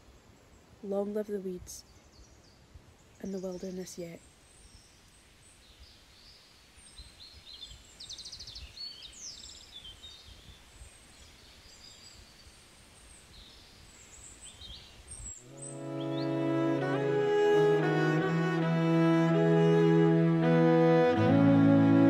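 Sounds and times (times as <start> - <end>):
small birds chirping: 0.0 - 16.5.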